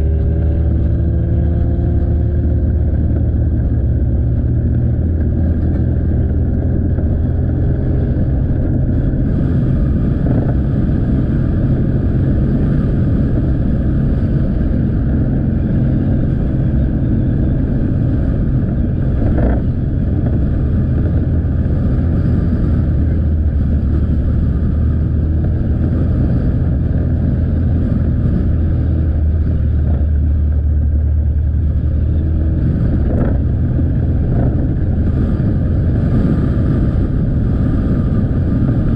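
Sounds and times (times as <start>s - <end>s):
motorcycle engine running: 0.0s - 38.9s
road noise: 0.0s - 38.9s.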